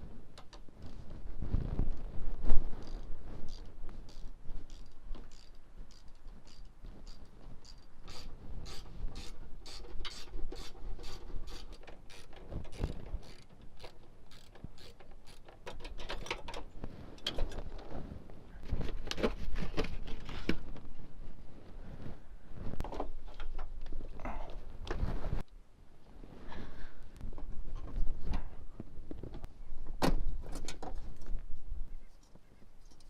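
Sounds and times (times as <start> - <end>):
tools and metal parts clunking: 4.7 - 17.9.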